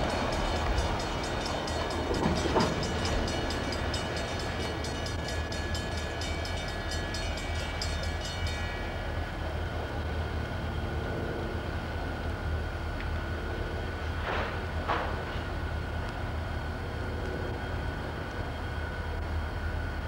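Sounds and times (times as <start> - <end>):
wheels clicking over rail joints: 0.0 - 9.2
train low rumble: 0.0 - 20.0.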